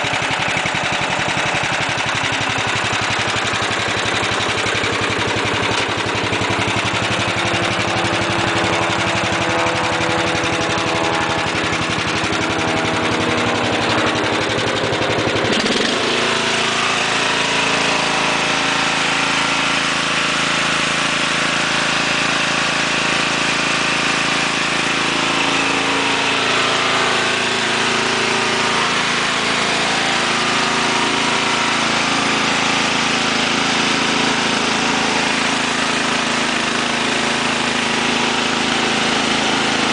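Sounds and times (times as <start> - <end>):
lawn tractor engine running: 0.0 - 39.9.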